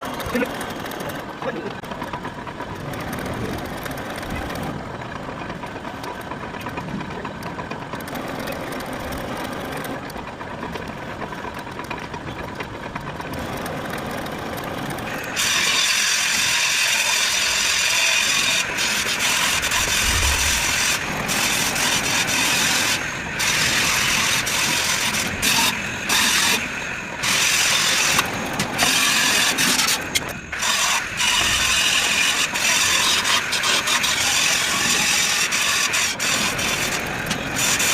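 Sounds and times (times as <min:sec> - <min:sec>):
metal lathe cutting steel: 0:13.2 - 0:37.9.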